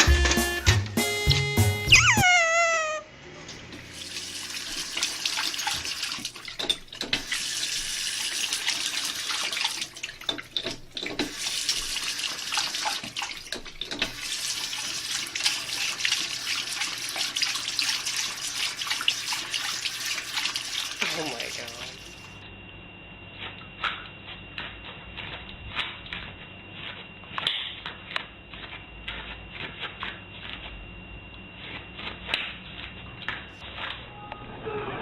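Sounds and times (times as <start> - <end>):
tap water running into sink: 4.0 - 22.2.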